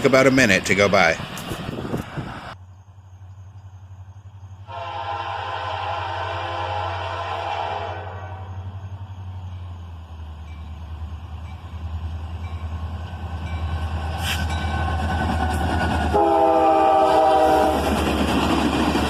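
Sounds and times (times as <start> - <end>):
locomotive engine rumble: 0.0 - 19.0
locomotive air horn: 4.7 - 8.7, 16.1 - 17.8.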